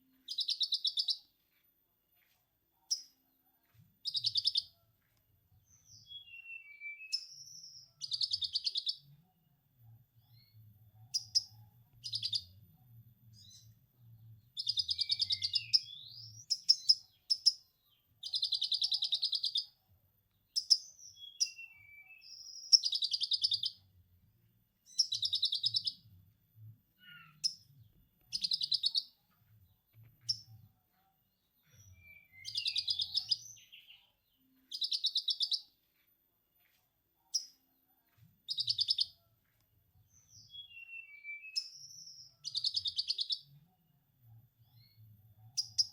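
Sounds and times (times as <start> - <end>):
bird chirps: 0.0 - 1.5, 4.0 - 4.8, 5.6 - 9.2, 10.2 - 19.8, 20.4 - 23.9, 24.8 - 26.1, 27.0 - 30.7, 31.3 - 35.8, 36.6 - 37.6, 38.4 - 39.3, 40.0 - 43.7, 44.6 - 45.9
sunbird chattering song: 0.3 - 1.2, 4.0 - 4.7, 28.3 - 29.1, 32.0 - 34.0, 34.7 - 35.7, 38.5 - 39.1.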